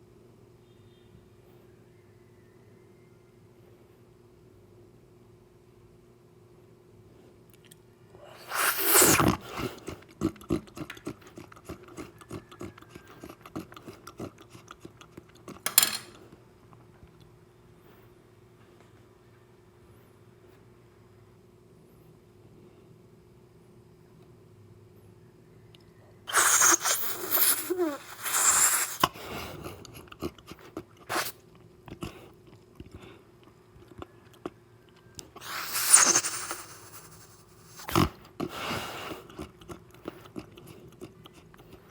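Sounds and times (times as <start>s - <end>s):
slurping soup: 8.3s - 15.7s, 26.3s - 33.2s, 35.2s - 41.8s
wet chewing and gulping: 8.4s - 15.7s, 26.3s - 41.9s.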